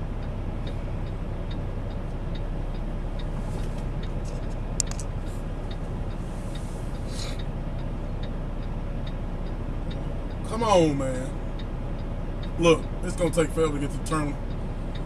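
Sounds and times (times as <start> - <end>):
faint even ticking: 0.0 - 15.0
truck engine and road drone: 0.0 - 15.0
sharp click: 3.6 - 5.1.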